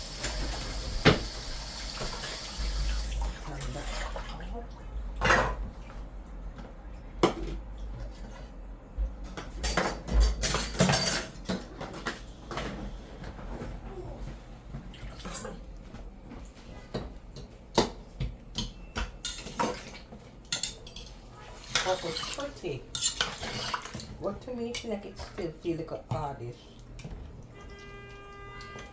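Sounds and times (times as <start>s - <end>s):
metal pots and utensils clanking: 9.5s - 12.8s, 18.6s - 26.5s.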